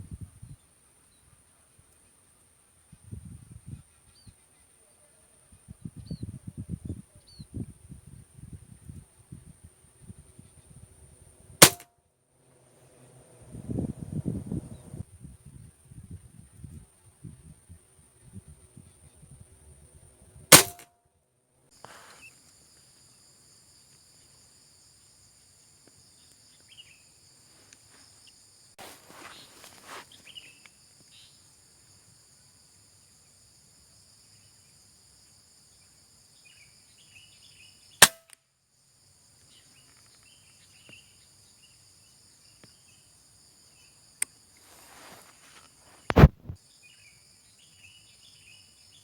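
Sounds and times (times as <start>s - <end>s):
insects droning: 0.0s - 20.7s, 21.7s - 49.0s
gunshots: 11.6s - 11.9s, 20.5s - 20.8s
faint crack: 28.8s - 30.4s, 44.2s - 46.6s.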